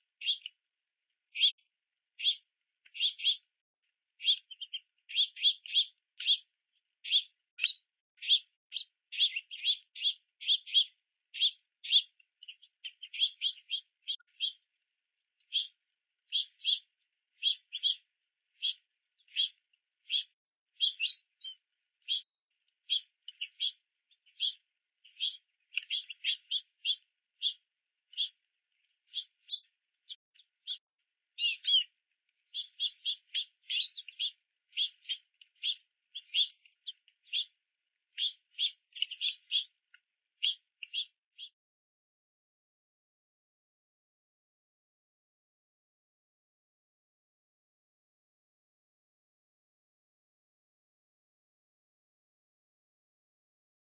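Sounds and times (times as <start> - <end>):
young finches chirping: 0.1 - 0.6, 1.4 - 1.6, 2.2 - 3.5, 4.2 - 14.7, 15.4 - 39.8, 40.4 - 41.6.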